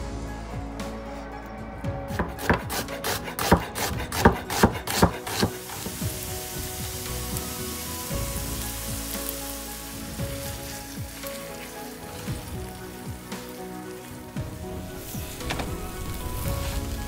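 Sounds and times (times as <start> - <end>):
soft background music: 0.0 - 17.0
food sizzling in a frying pan: 4.8 - 17.0.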